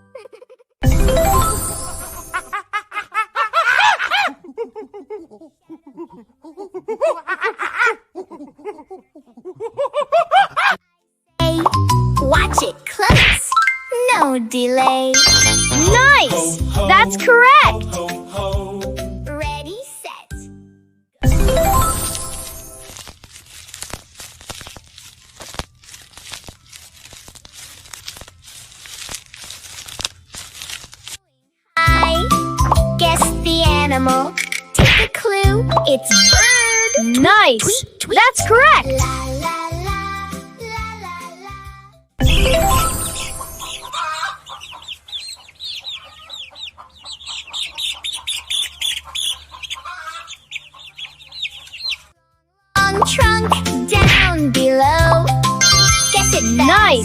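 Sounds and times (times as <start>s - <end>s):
plastic bag crinkling and tearing: 22.0s - 31.3s
bird chirping: 43.2s - 52.1s.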